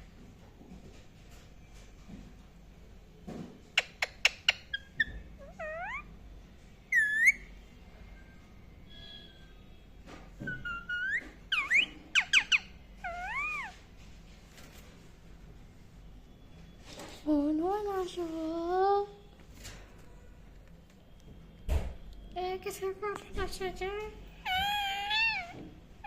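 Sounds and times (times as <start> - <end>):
parakeet chirping: 3.8 - 6.1, 6.9 - 7.5, 10.4 - 13.8, 24.4 - 25.6
parakeet whistled calls: 6.9 - 7.5, 10.5 - 13.7.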